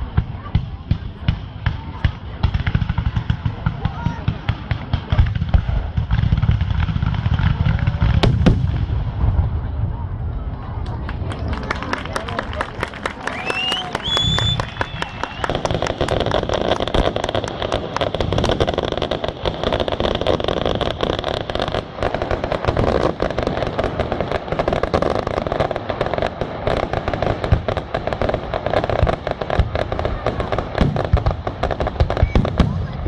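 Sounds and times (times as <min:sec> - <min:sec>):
fireworks crackling bangs: 0:00.0 - 0:33.0
firework whistle: 0:13.2 - 0:17.2, 0:32.1 - 0:33.0.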